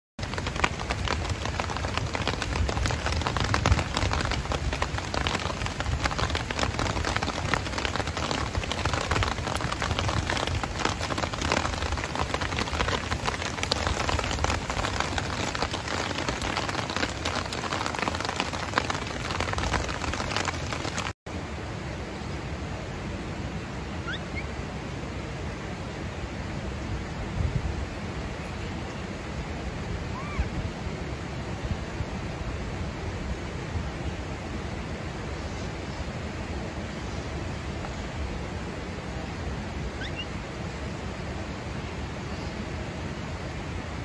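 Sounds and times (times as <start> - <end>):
rain pattering on wet ground: 0.2 - 21.2.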